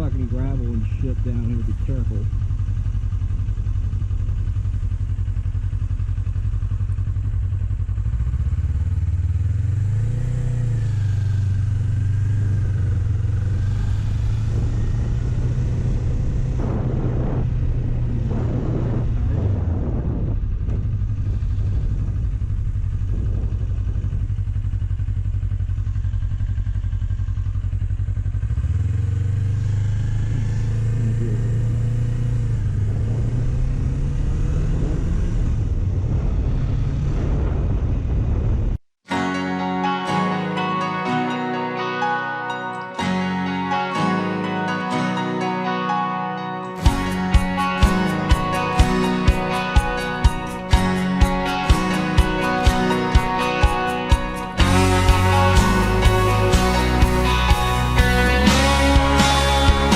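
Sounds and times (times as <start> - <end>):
motorcycle engine running: 0.0 - 39.2, 46.8 - 59.9
rushes of noise: 10.0 - 24.3, 29.7 - 38.8.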